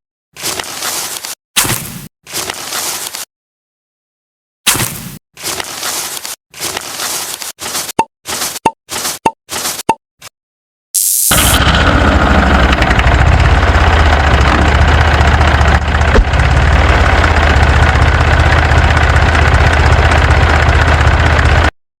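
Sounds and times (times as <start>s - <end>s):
tractor engine idling: 11.3s - 21.7s.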